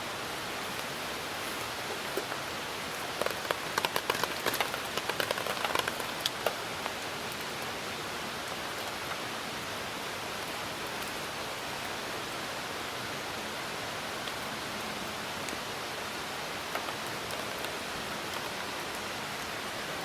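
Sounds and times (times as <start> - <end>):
rain hiss: 0.0 - 20.0
sharp crackles and pops: 1.7 - 7.4.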